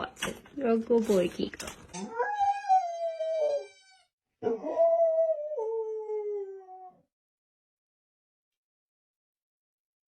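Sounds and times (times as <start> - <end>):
dog howling: 2.0 - 7.1.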